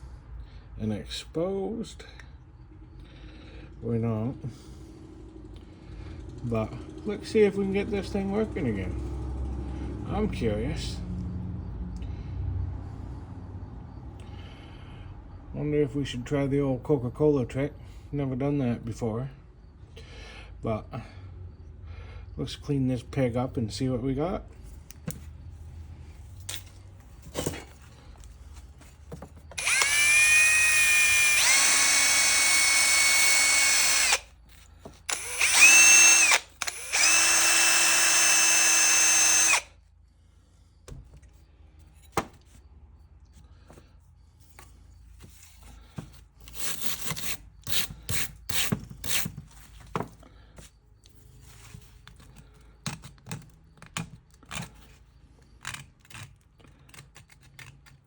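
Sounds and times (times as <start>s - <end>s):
small power drill running: 29.6s - 39.7s.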